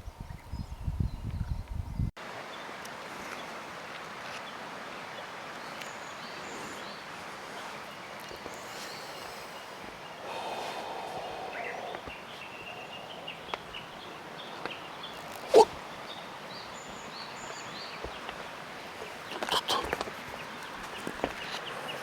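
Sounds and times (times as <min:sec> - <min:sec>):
steady background hiss: 0:02.2 - 0:22.0
faint bird chirps: 0:07.9 - 0:18.3.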